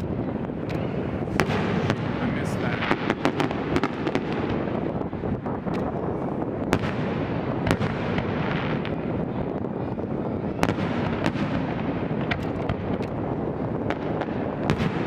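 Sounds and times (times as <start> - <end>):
fireworks rumble and crackle: 0.0 - 15.0
fireworks sharp bangs: 0.0 - 15.0.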